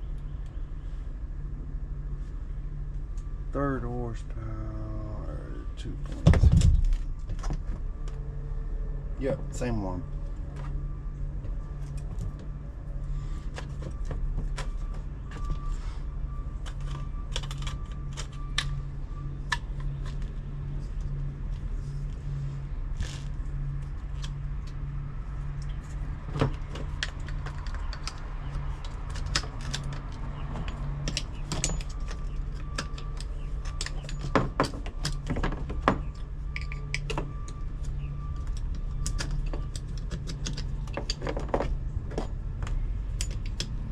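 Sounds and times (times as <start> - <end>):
steady low hum: 0.0 - 43.9
hand tools clinking and knocking: 26.4 - 37.6.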